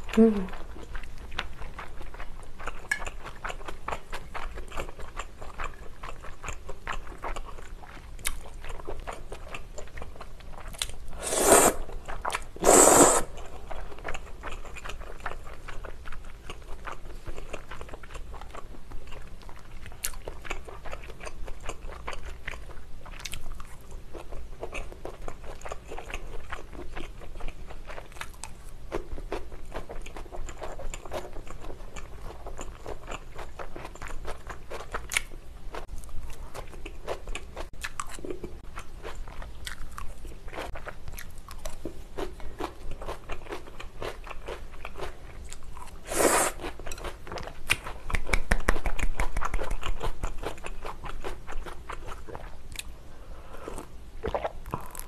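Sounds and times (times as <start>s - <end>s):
chewing and biting food: 0.5s - 11.2s, 11.9s - 52.9s
wet mouth clicks: 12.6s - 13.4s, 47.7s - 49.9s.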